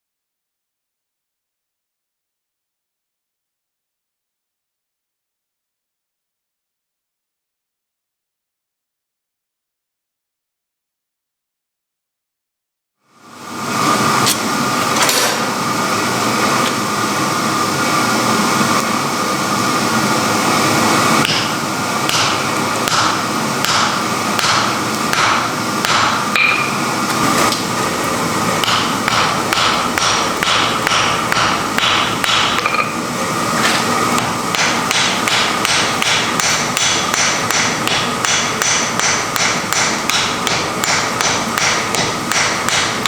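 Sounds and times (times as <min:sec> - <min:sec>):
hammer striking hot iron on anvil: 0:21.2 - 0:26.9, 0:28.6 - 0:33.0, 0:34.2 - 0:43.0.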